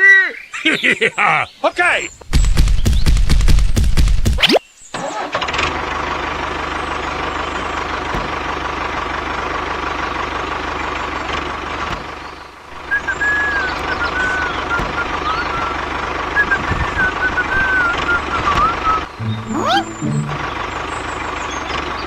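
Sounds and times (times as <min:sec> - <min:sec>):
small engine running with whine: 0:05.4 - 0:22.0
high warbling chirping: 0:19.1 - 0:21.2.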